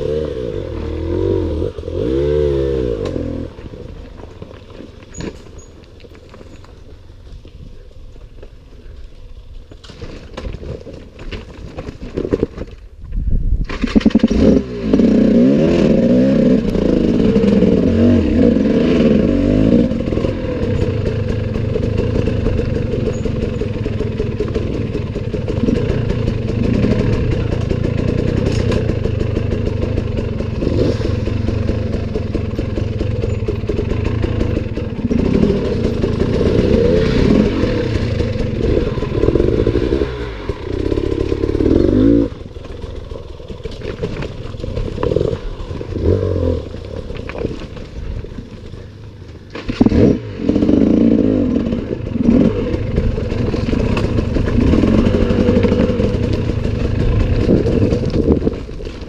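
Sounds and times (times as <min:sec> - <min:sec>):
dirt bike engine revving: 0:00.0 - 0:03.7, 0:13.9 - 0:47.0, 0:49.7 - 0:58.8.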